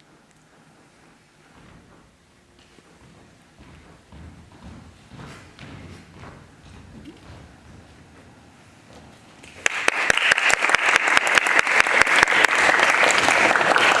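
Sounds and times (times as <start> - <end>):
audience applauding: 9.4 - 14.0.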